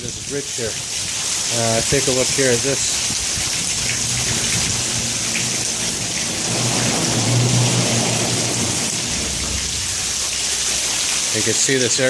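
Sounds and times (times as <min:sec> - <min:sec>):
heavy rain splashing: 0:00.0 - 0:12.0
low rumble: 0:03.2 - 0:10.9.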